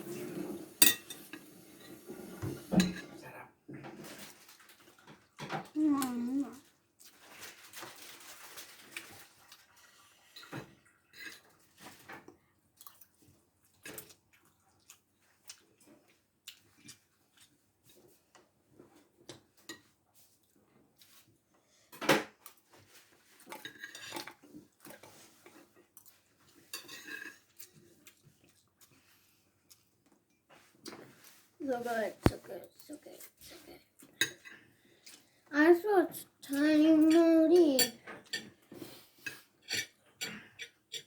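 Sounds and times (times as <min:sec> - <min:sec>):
utensils clinking against bowl: 0:00.1 - 0:03.2, 0:26.7 - 0:27.8, 0:36.6 - 0:41.0.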